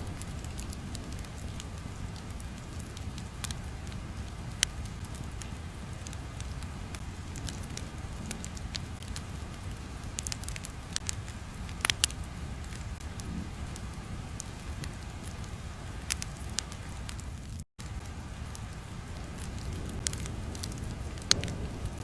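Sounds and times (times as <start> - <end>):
fire low rumble: 0.0 - 22.0
fire pops and crackles: 0.0 - 22.0.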